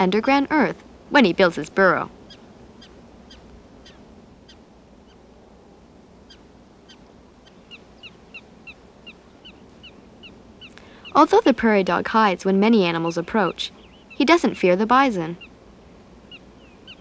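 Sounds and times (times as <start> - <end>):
prairie dogs chirping barks: 0.0 - 5.2, 6.2 - 15.6, 16.2 - 17.0.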